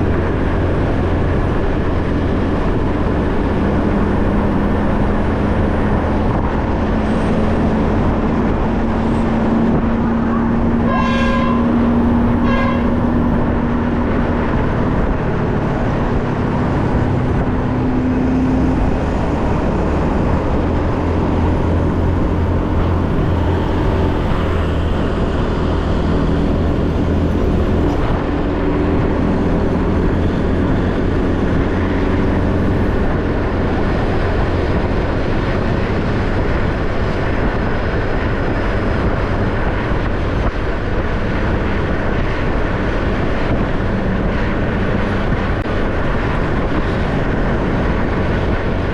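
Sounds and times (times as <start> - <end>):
wind and road noise: 0.0 - 48.9
vehicle horn beeps: 10.3 - 11.8, 12.4 - 13.1.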